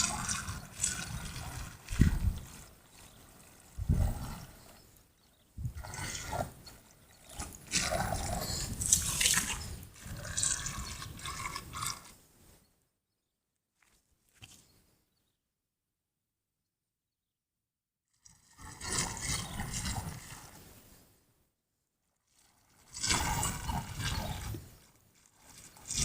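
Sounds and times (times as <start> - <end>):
water splashing and dripping: 0.0 - 4.8, 5.6 - 12.1.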